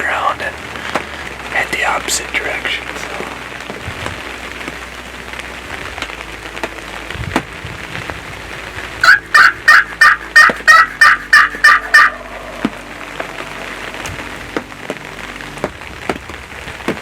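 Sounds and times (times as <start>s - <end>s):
turkey call yelps: 9.0s - 12.8s.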